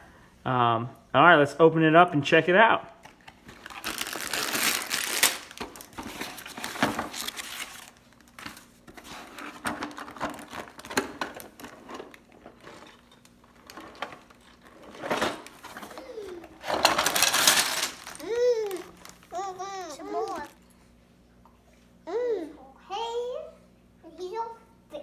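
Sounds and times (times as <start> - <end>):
packaging crinkling and rustling: 3.1 - 20.6.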